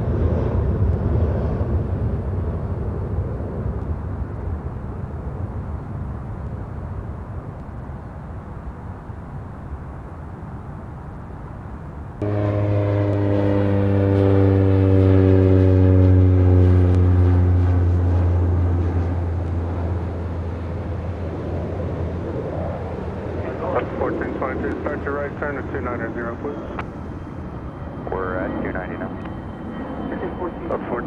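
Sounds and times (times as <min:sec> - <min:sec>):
aircraft engines at takeoff: 0:00.0 - 0:31.0.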